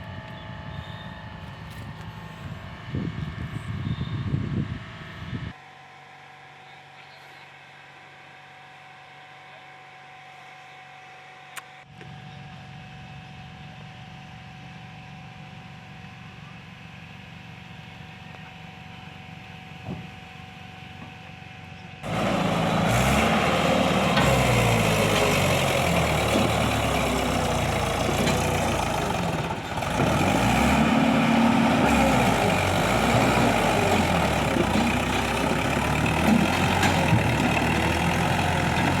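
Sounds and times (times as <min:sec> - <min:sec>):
backhoe diesel engine running: 0:22.0 - 0:39.0.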